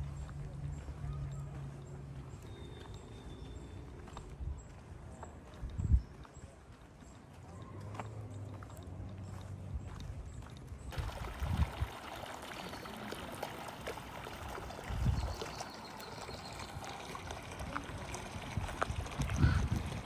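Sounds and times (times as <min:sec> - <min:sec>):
wind buffeting microphone: 0:05.5 - 0:06.3, 0:10.9 - 0:12.2, 0:14.2 - 0:20.0.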